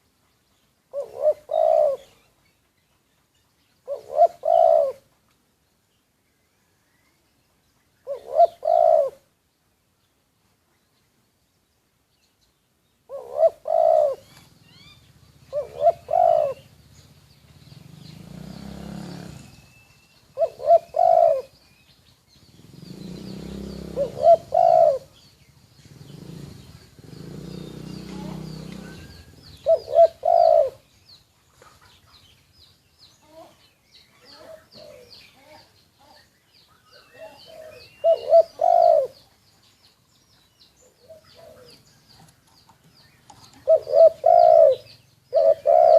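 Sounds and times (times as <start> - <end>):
small birds chirping: 0.0 - 45.9
dove cooing: 0.9 - 2.3, 3.8 - 5.1, 8.0 - 9.3, 13.1 - 17.0, 20.3 - 21.6, 22.6 - 25.2, 25.9 - 30.9, 34.2 - 36.3, 36.9 - 39.3, 40.8 - 42.3, 43.3 - 45.9.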